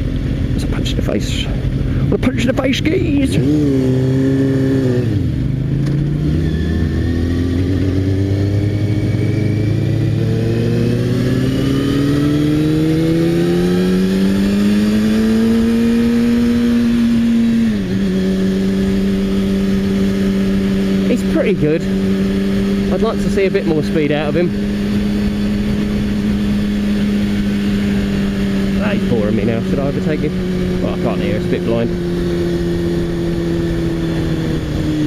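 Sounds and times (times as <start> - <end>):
motorcycle engine revving: 0.0 - 35.0
wind rush: 24.4 - 29.6.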